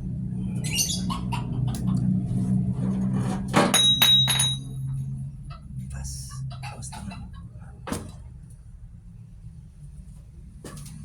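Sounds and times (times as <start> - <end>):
steady low hum: 0.0 - 11.0
metal parts clanking: 3.7 - 4.7.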